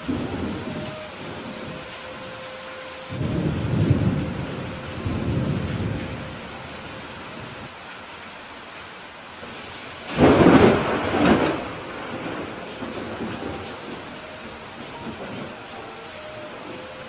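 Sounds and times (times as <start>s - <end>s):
thunder rumbling: 0.0s - 7.7s, 9.4s - 17.0s
steady rain: 0.0s - 17.0s
sharp thunder clap: 10.1s - 14.0s.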